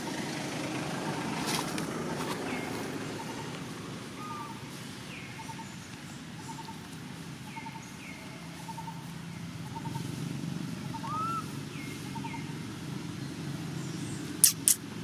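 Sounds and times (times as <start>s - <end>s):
bird pipping: 10.9s - 11.4s, 14.4s - 14.8s.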